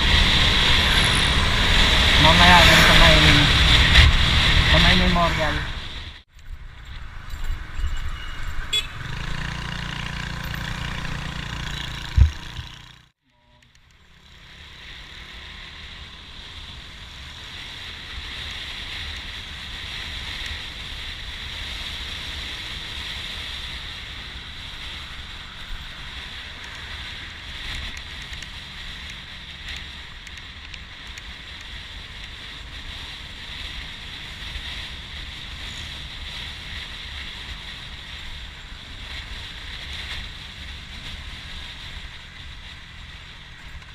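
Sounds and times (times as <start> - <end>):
motorcycle engine: 0.0 - 43.9.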